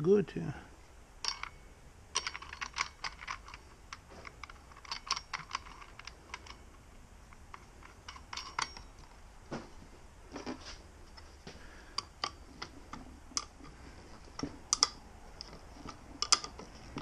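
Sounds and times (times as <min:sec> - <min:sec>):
small metal parts clicking: 0:01.2 - 0:09.2, 0:11.9 - 0:17.0.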